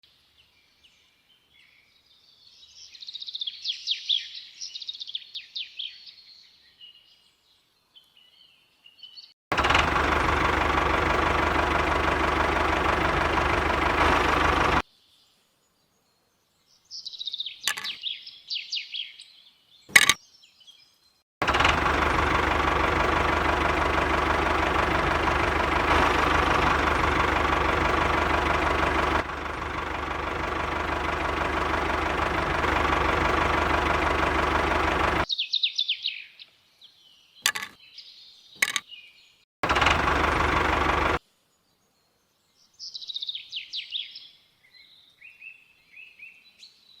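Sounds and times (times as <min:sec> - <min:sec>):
birds chirping: 0:09.5 - 0:14.8, 0:21.4 - 0:35.3
small engine running: 0:09.5 - 0:14.8, 0:21.4 - 0:35.3, 0:39.6 - 0:41.2
sharp click: 0:19.9 - 0:20.2.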